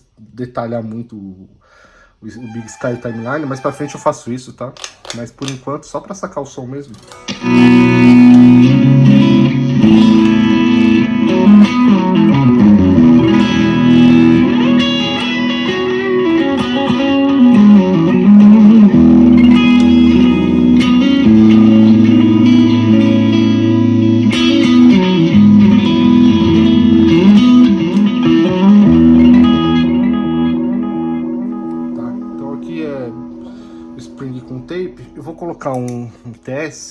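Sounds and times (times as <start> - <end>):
clean electric guitar: 7.0 - 36.4.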